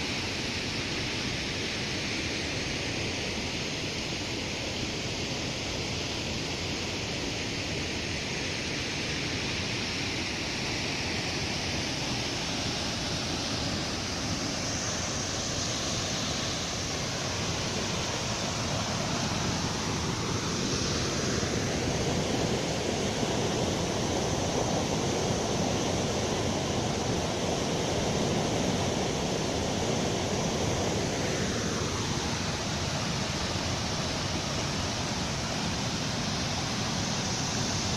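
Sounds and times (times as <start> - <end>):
waterfall rushing: 10.7 - 37.9.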